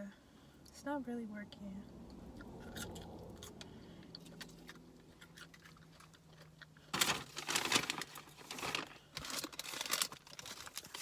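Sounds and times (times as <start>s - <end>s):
chewing with mouth clicks: 2.1s - 6.9s
sandwich wrapper crinkling: 4.2s - 11.0s.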